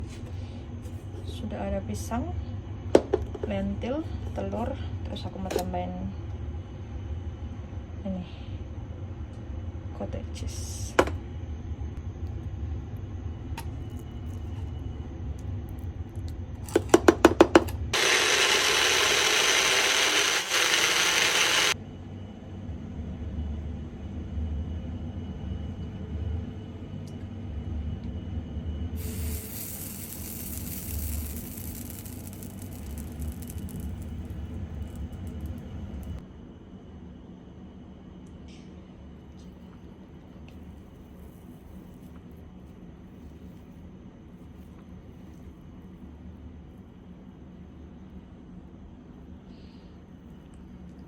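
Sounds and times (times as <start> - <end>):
electric blender running: 17.9 - 21.8, 29.0 - 36.1.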